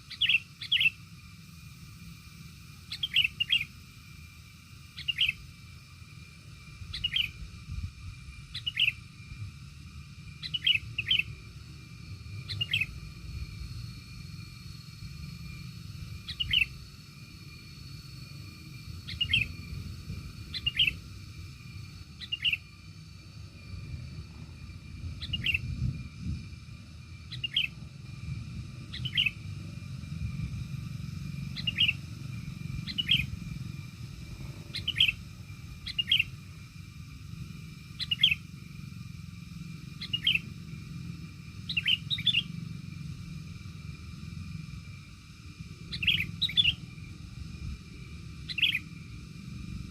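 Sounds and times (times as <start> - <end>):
bird chirping: 0.0 - 1.0, 2.9 - 3.8, 4.9 - 5.4, 6.8 - 7.4, 8.5 - 9.0, 10.3 - 11.4, 12.3 - 13.1, 15.5 - 22.8, 23.6 - 26.0, 27.3 - 27.8, 28.9 - 29.5, 31.5 - 33.9, 34.6 - 36.4, 38.0 - 38.5, 39.9 - 40.6, 41.6 - 42.6, 45.9 - 47.0, 48.4 - 48.9
low steady rumble: 0.0 - 49.9.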